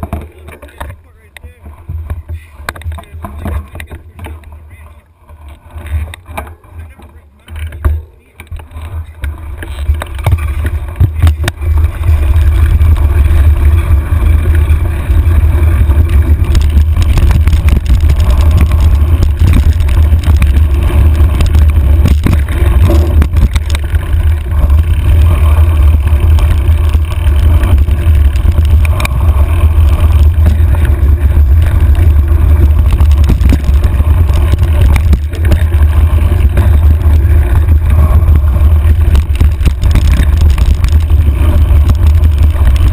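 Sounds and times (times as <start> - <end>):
bike knocks and rattles: 0.0 - 42.9
wind buffeting microphone: 8.6 - 42.9.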